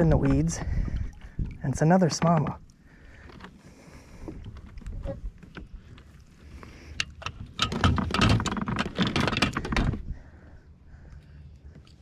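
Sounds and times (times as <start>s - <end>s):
rattling clicks and knocks: 7.0s - 10.1s.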